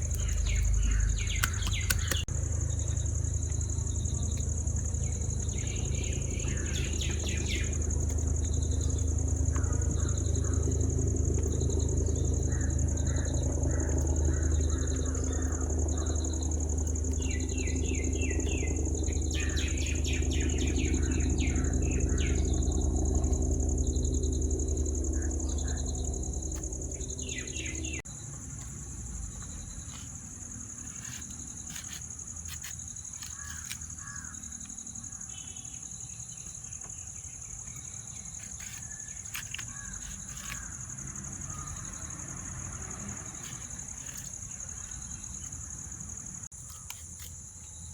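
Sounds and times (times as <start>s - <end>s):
low machine hum: 0.0s - 29.9s
small birds chirping: 0.0s - 47.9s
high-pitched whine: 2.2s - 28.0s.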